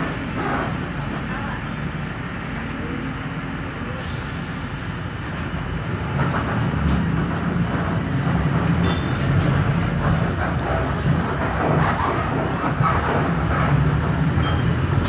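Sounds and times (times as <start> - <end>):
bus diesel engine running: 0.0 - 15.0.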